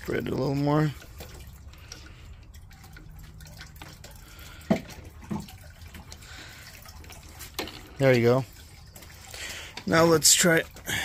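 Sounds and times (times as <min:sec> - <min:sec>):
water dripping and trickling: 0:00.0 - 0:11.0.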